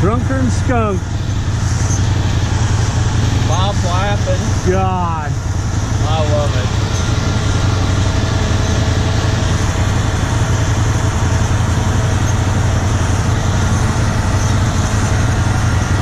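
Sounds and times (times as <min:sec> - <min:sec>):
combine harvester diesel drone: 0:00.0 - 0:16.0.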